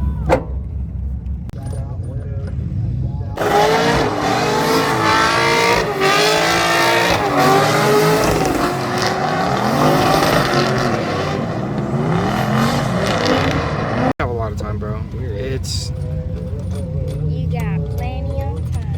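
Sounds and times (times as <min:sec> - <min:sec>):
tyre noise: 0:00.0 - 0:14.1
car engine revving: 0:00.0 - 0:18.9.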